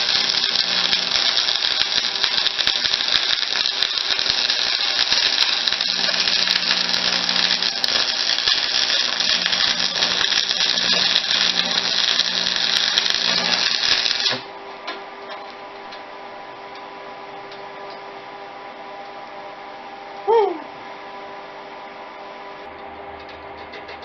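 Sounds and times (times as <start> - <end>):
arc welding crackle: 0.0 - 14.5
steady hum: 0.0 - 23.7.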